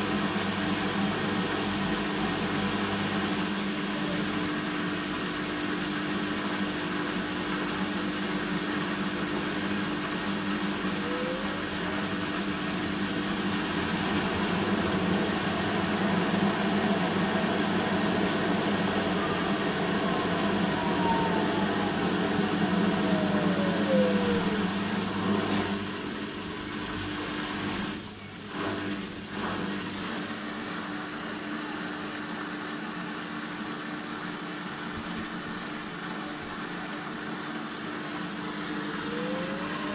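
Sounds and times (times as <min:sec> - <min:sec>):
washing machine motor hum: 0:00.0 - 0:39.9
motor whine falling in pitch: 0:08.9 - 0:27.7.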